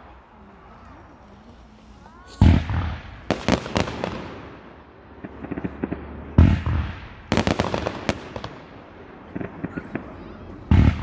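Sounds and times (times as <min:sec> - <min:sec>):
firework crackling pops: 0:02.2 - 0:11.0
firework deep boom: 0:02.4 - 0:11.0.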